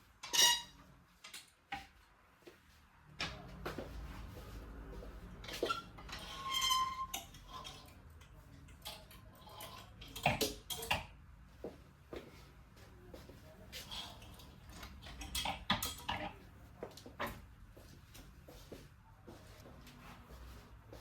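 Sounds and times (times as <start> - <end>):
short ringing squeak: 0.2 - 0.8, 5.7 - 7.2.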